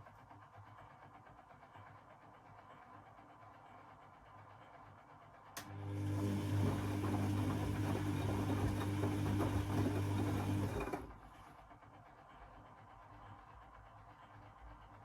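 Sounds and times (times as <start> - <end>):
washing machine drum churning: 5.9 - 11.2.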